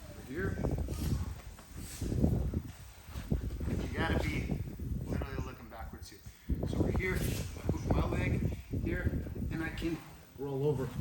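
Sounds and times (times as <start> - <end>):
cloth rustling on mat: 0.0 - 5.0.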